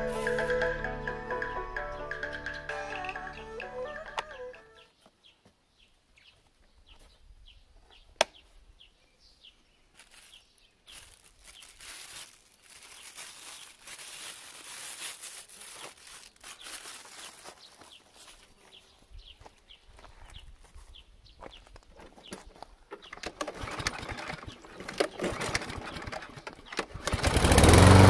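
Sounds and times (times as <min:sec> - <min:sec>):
music: 0:00.0 - 0:04.9
birds chirping: 0:00.0 - 0:14.2, 0:15.4 - 0:28.0.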